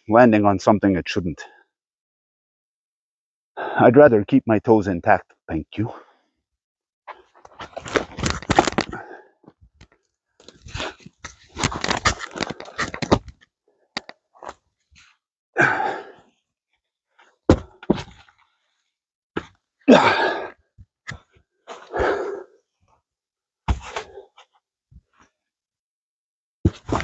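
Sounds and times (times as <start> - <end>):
heavy log thudding: 17.5 - 18.2
person grunting: 19.9 - 20.5.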